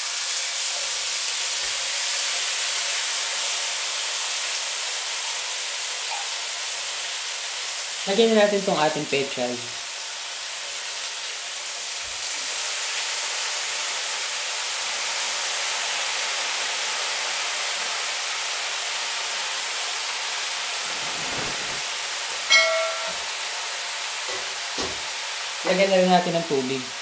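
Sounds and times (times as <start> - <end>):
food sizzling in a wok: 0.0 - 27.0
short loud ringing tone: 22.5 - 23.3.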